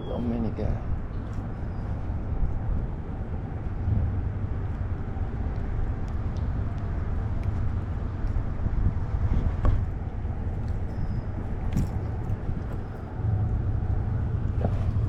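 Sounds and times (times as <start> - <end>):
low rumble of wind on microphone: 0.0 - 15.0.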